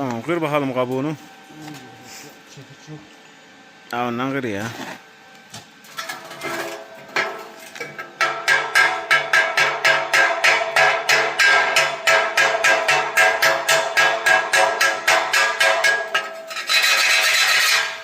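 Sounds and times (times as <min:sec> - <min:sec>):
chipping hammer striking steel tube: 0:08.2 - 0:16.6.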